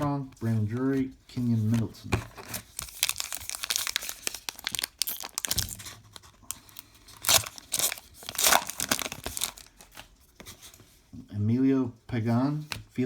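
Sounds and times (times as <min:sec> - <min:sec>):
foil wrapper crinkling and tearing: 0:02.5 - 0:09.9.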